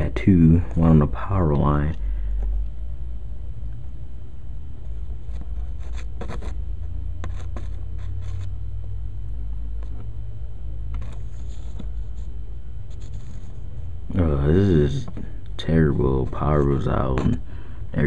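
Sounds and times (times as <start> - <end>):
steady low rumble: 0.0 - 18.0
scraping and rustling near microphone: 10.9 - 13.8.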